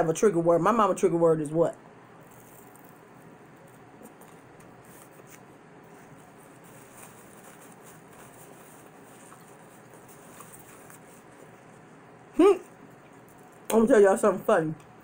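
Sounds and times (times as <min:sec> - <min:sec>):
steady low hiss: 0:00.0 - 0:15.0
chewing pizza: 0:02.2 - 0:11.9
paper napkin crackling: 0:02.2 - 0:11.9.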